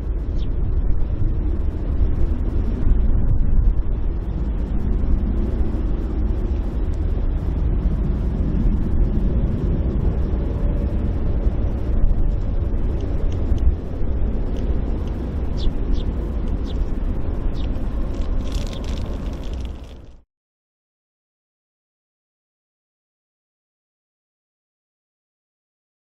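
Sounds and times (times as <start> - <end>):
jet engines rumbling: 0.0 - 20.2.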